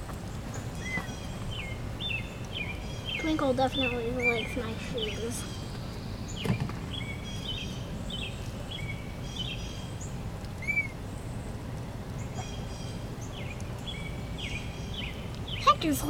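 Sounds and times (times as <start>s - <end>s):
low background rumble: 0.0s - 16.0s
small birds chirping: 0.0s - 16.0s.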